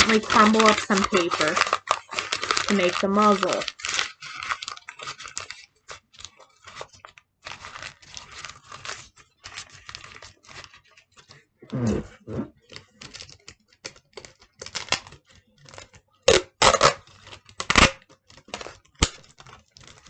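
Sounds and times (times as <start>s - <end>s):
paper crumpling: 0.0s - 11.5s, 12.2s - 16.2s, 17.0s - 20.0s.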